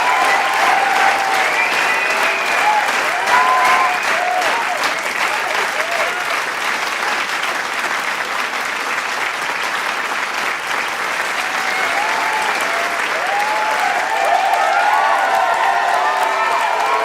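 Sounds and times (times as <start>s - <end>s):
crowd calling and whooping: 0.0s - 6.3s, 11.2s - 17.0s
crowd applauding: 0.0s - 17.0s.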